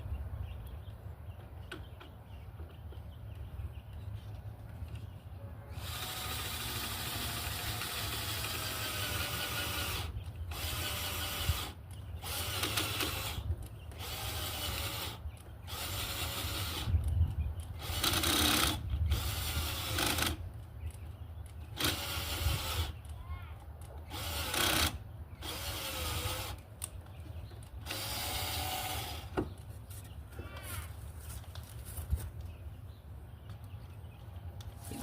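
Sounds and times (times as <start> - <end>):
cordless drill drilling into wood: 5.7 - 13.4, 14.0 - 16.9, 17.8 - 20.4, 21.8 - 23.0, 24.1 - 26.6, 27.8 - 29.4.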